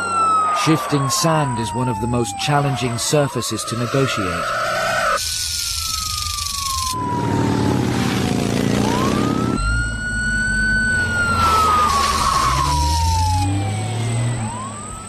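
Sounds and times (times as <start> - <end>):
off-road engines revving: 7.0 - 15.0.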